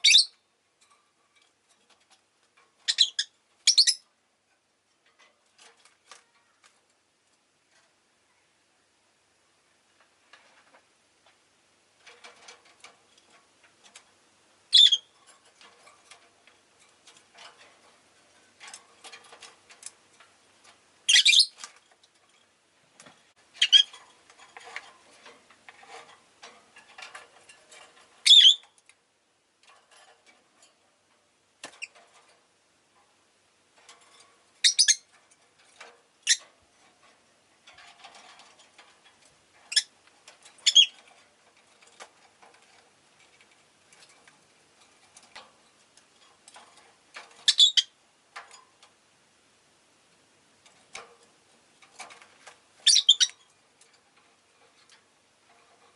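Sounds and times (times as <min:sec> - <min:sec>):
soft bird chatter and clicks: 0:05.1 - 0:08.6, 0:33.8 - 0:49.0, 0:50.6 - 0:55.9.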